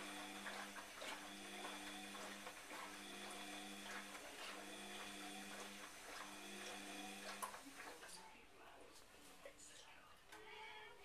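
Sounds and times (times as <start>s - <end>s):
washing machine low hum: 0.0s - 8.4s.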